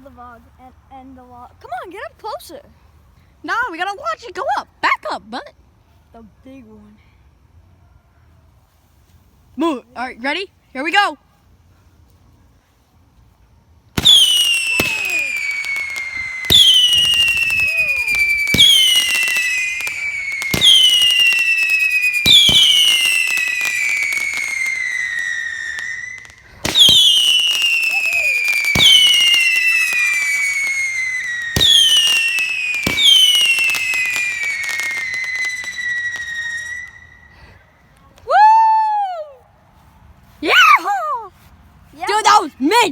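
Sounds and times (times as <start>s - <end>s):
whistling fireworks: 13.9s - 39.2s.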